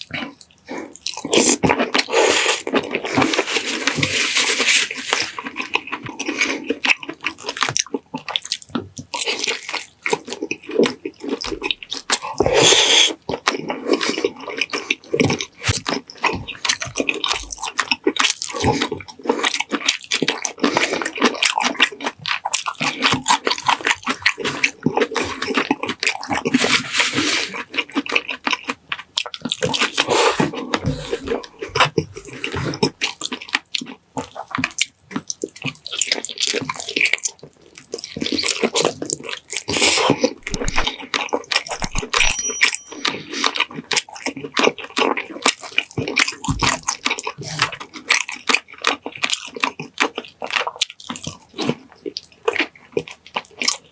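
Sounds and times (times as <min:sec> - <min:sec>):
slurping: 0:00.0 - 0:07.6, 0:08.5 - 0:16.8, 0:29.3 - 0:33.5, 0:35.9 - 0:43.6
wet chewing: 0:00.0 - 0:53.9.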